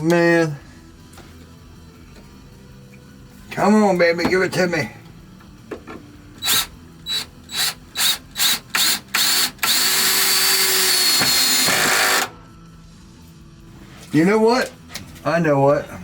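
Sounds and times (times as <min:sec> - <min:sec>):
power drill driving a screw: 0:06.4 - 0:12.3.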